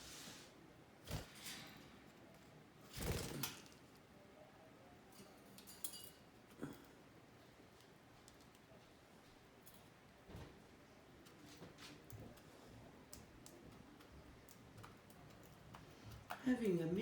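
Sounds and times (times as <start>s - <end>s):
bird cage clinks and knocks: 5.2s - 6.3s.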